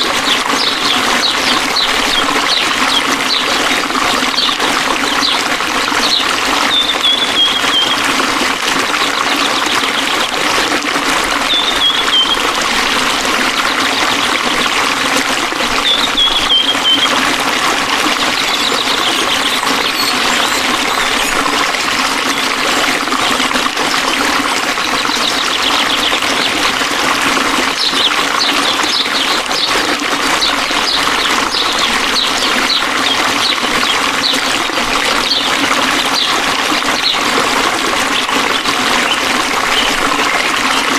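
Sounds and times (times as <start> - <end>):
water trickling and splashing: 0.0 - 40.9
bird chirping: 0.2 - 8.1, 11.4 - 12.6, 15.8 - 17.3, 18.0 - 21.5, 27.8 - 34.5.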